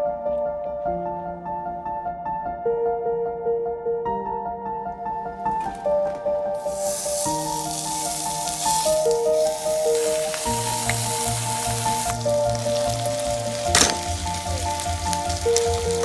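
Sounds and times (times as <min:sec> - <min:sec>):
soft background music: 0:00.0 - 0:16.0
food sizzling in a pan: 0:06.6 - 0:16.0.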